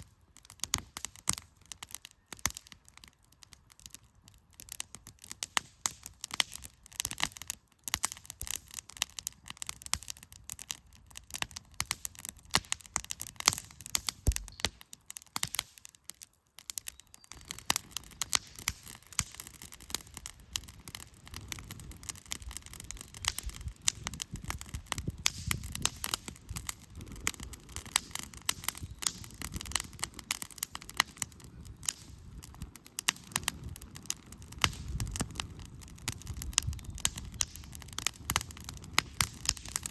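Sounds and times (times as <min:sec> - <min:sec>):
wood fire crackling and popping: 0:00.0 - 0:39.9
low rushing of flames: 0:17.3 - 0:39.9.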